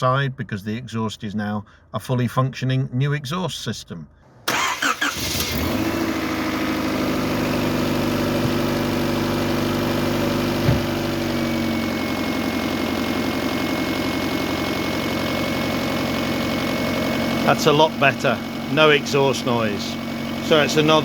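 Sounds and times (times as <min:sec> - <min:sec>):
car engine idling: 0:04.5 - 0:21.0
short knock: 0:10.6 - 0:10.9.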